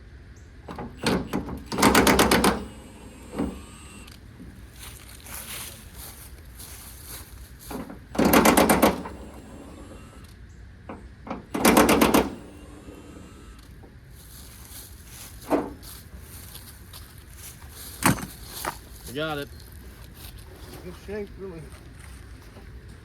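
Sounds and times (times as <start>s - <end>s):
impact wrench hammering: 1.0s - 2.7s, 7.7s - 9.2s, 11.5s - 12.6s.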